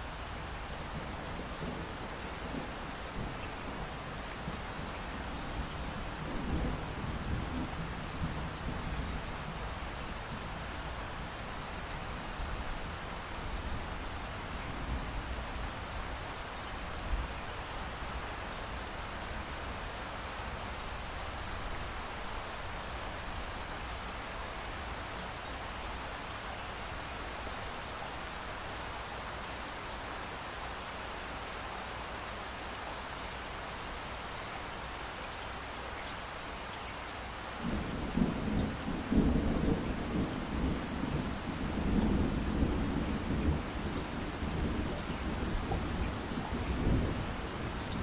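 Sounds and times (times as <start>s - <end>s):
steady rain hiss: 0.0s - 48.0s
low rumble of thunder: 0.8s - 11.0s, 37.6s - 48.0s.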